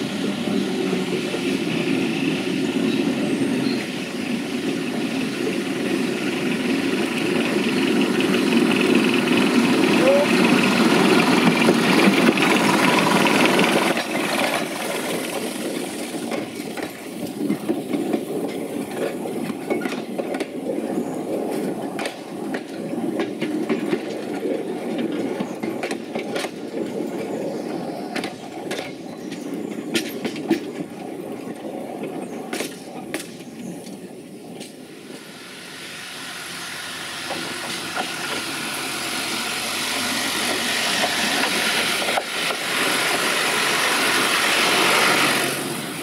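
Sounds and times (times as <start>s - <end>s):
locomotive engine passing: 0.0s - 46.0s
wheel clicks over rail joints: 6.8s - 34.8s, 37.2s - 38.5s, 39.2s - 45.7s.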